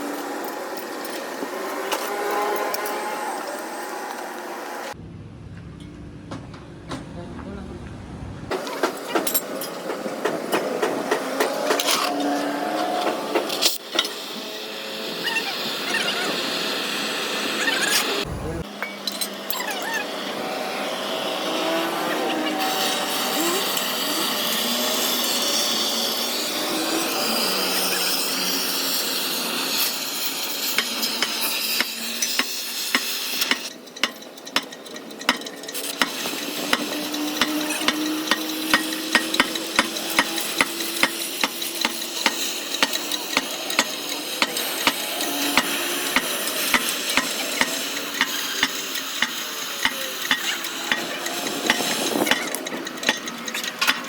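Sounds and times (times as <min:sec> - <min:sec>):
arc welding crackling: 0:35.7 - 0:53.8.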